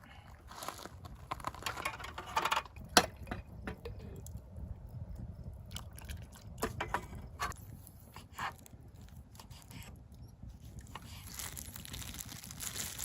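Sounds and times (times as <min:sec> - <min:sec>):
low background rumble: 0:00.0 - 0:13.0
handling clicks and rustles: 0:00.6 - 0:04.4.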